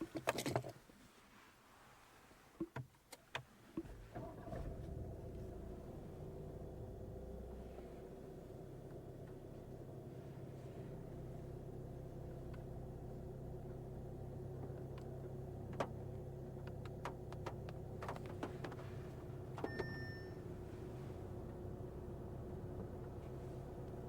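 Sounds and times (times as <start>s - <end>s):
diesel engine hum: 3.8s - 24.0s
short electronic beep: 19.7s - 20.4s.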